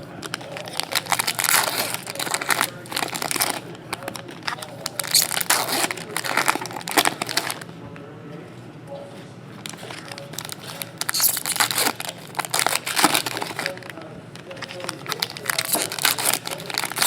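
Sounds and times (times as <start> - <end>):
foil wrappers crinkling: 0.0 - 7.7, 9.6 - 17.0.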